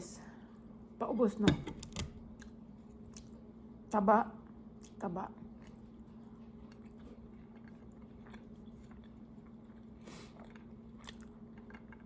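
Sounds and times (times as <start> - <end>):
steady low hum: 0.0 - 12.0
person chewing food: 5.6 - 12.0.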